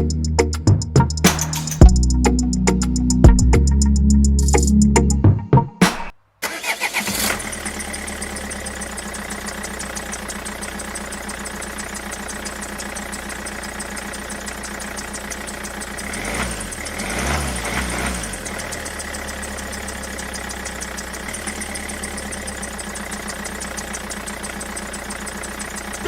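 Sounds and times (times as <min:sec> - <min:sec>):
engine idling: 0:07.0 - 0:26.0.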